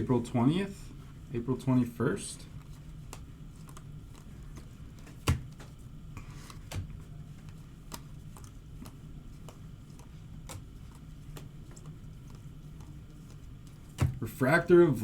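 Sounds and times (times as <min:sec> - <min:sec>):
steady low hum: 0:00.0 - 0:15.0
cards clicking and tapping: 0:02.7 - 0:14.2.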